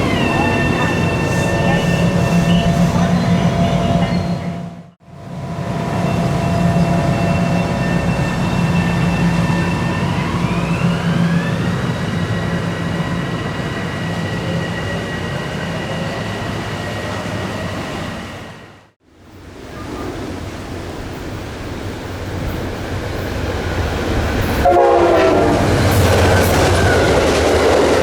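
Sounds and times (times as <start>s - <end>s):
train motor whine: 0.0s - 17.9s, 23.7s - 28.0s
train low hum: 0.0s - 28.0s.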